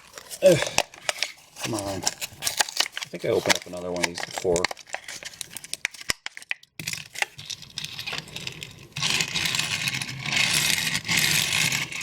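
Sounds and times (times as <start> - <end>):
plastic and card crinkling and tearing: 0.0 - 12.0
stiff plastic clicking and cracking: 0.1 - 7.4.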